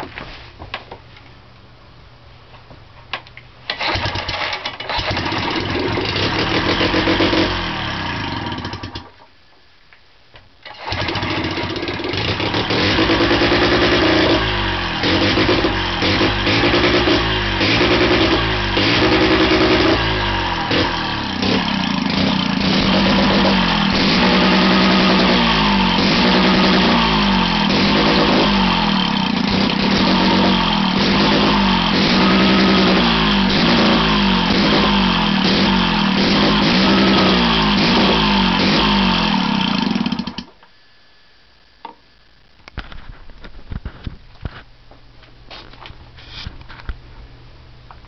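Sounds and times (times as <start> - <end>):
rotary engine revving: 3.8 - 9.0, 10.8 - 40.4.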